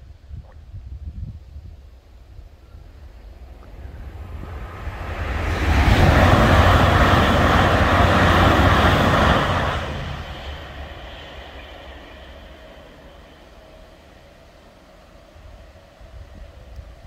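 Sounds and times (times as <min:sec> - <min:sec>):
train wheels rushing on rail: 0:03.4 - 0:17.0.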